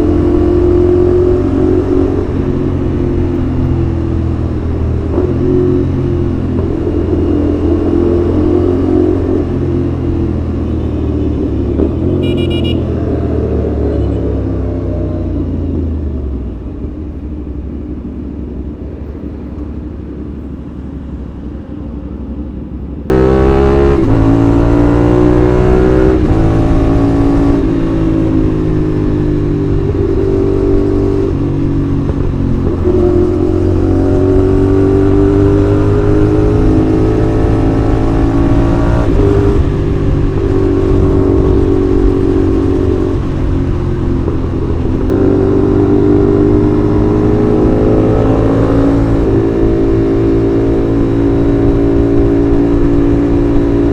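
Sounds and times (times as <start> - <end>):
motorcycle engine accelerating: 0.0 - 16.4, 23.1 - 53.9.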